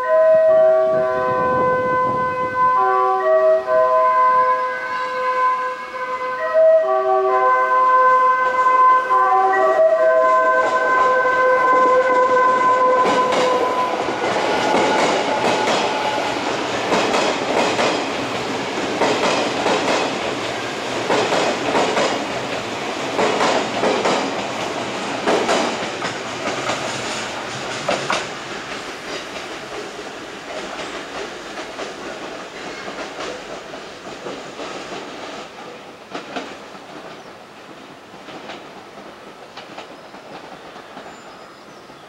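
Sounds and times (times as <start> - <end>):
steady high tone: 9.0 - 17.6
train wheels clattering over joints: 11.8 - 37.3.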